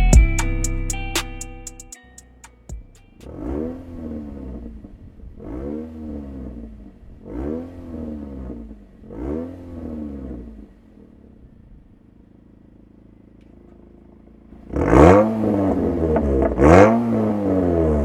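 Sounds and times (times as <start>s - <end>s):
car engine revving: 2.8s - 12.7s, 14.5s - 18.0s.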